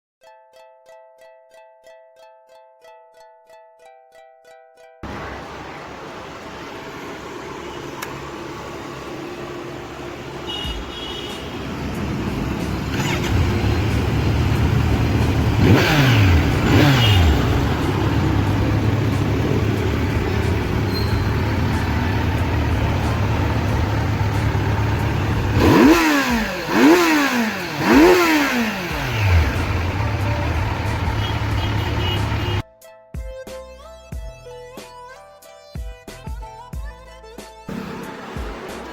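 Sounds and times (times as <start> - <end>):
motorcycle idling and revving: 5.0 - 32.6, 37.7 - 38.9.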